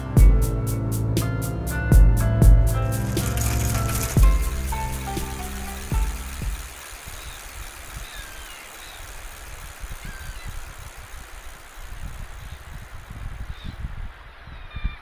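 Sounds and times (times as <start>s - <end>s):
faint high bird chirps: 7.1s - 9.3s, 9.9s - 10.8s, 13.4s - 15.0s.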